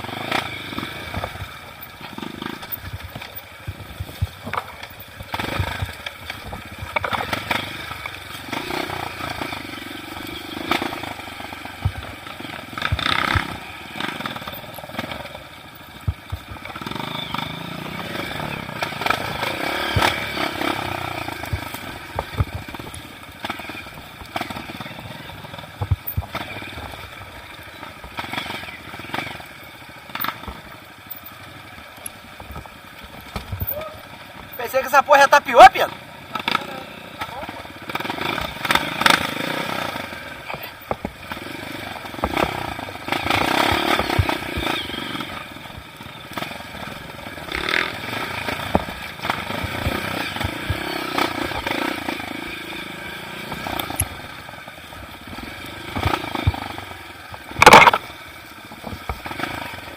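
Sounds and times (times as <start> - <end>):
motorcycle engine revving: 0.0 - 59.9
bike rattling over rocks: 1.0 - 17.5, 18.3 - 34.8, 38.2 - 46.7, 53.3 - 59.9.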